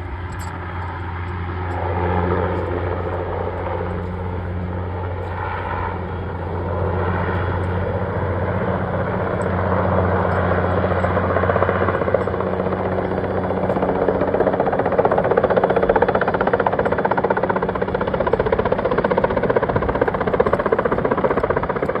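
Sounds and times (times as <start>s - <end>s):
helicopter hovering overhead: 0.0s - 22.0s.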